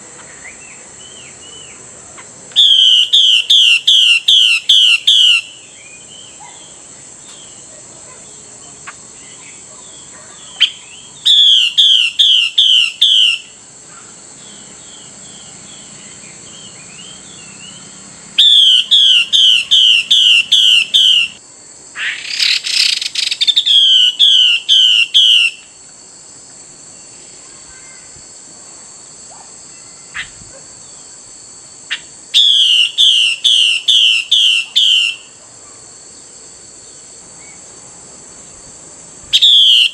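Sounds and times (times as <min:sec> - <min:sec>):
bird calling downslurred notes: 0:16.0 - 0:21.4, 0:39.4 - 0:39.9.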